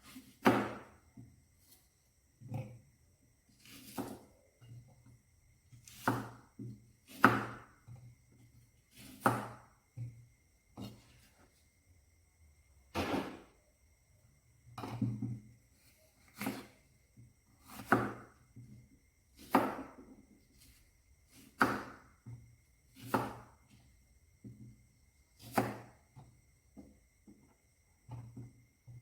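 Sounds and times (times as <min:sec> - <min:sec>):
short sharp hits: 0:13.0 - 0:13.4.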